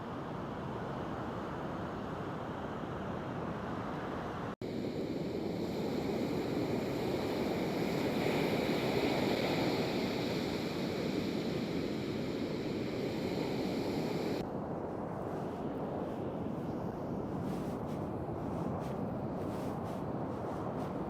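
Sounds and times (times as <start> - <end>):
ocean surf on beach: 2.2 - 14.4.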